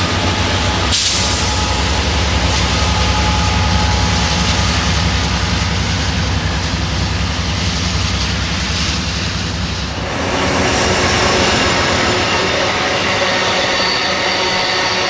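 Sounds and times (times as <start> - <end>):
rail cars rushing past: 0.0 - 15.0
high wheel whine: 9.8 - 15.0.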